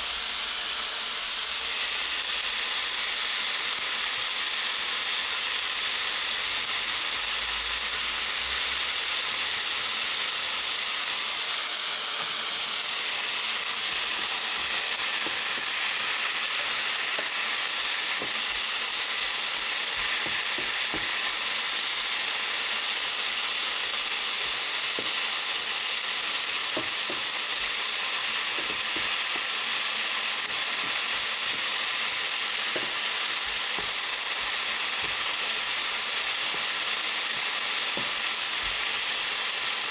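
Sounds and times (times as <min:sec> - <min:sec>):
food frying in a pan: 0:00.0 - 0:39.9.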